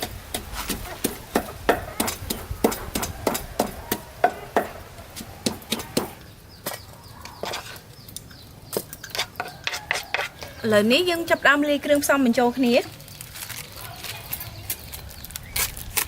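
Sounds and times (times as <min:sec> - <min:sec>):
knife chopping on cutting board: 0:00.0 - 0:06.2.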